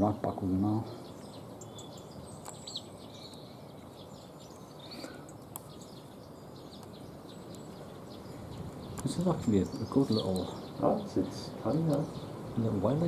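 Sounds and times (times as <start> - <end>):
background hiss: 0.0 - 13.0
small birds chirping: 0.0 - 13.0
sharp clicks: 2.4 - 3.5, 5.3 - 5.8, 8.8 - 9.2, 11.8 - 12.1.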